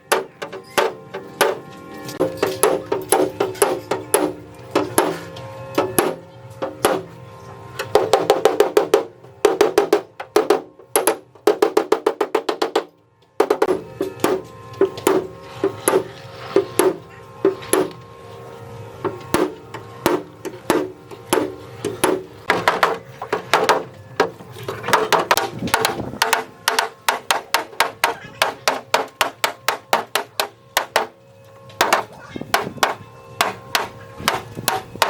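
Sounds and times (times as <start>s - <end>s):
hammer blows: 0.1s - 18.1s, 19.0s - 35.0s.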